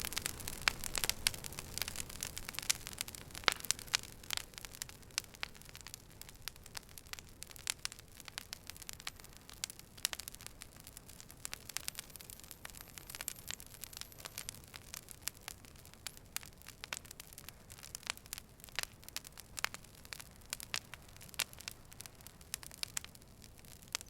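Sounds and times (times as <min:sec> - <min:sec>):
faint steady hiss: 0:00.0 - 0:24.0
wood fire crackling and popping: 0:00.0 - 0:24.0.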